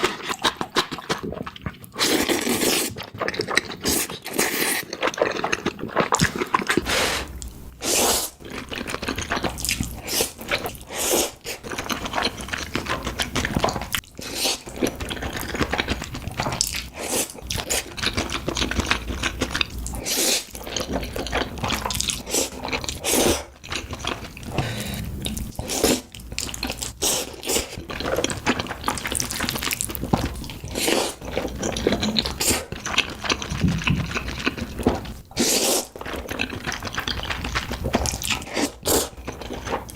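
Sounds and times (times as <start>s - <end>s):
crunching bites and chewing: 0.0s - 7.6s, 11.4s - 39.9s.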